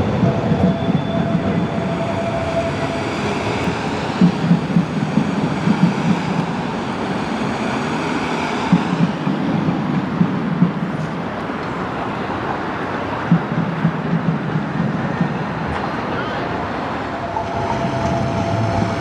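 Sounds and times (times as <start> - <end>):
city street traffic: 0.0 - 19.0
low irregular thumps: 3.6 - 6.5.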